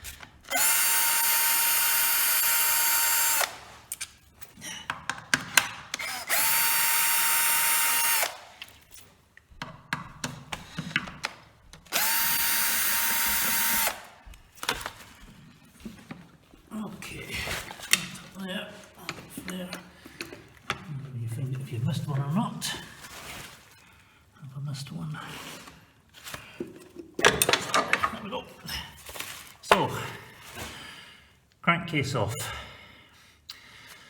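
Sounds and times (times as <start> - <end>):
electric drill running: 0.4 - 3.9, 6.0 - 8.6, 11.9 - 14.3.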